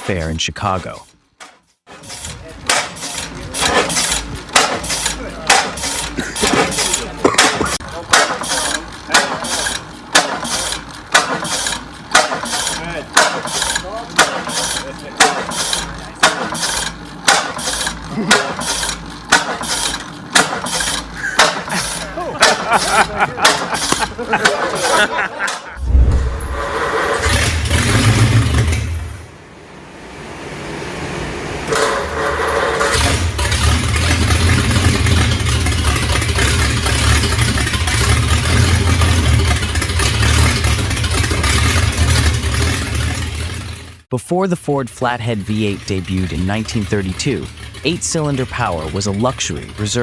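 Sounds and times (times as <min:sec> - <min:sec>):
gas engine running slowly: 0:02.0 - 0:25.4, 0:30.1 - 0:44.0.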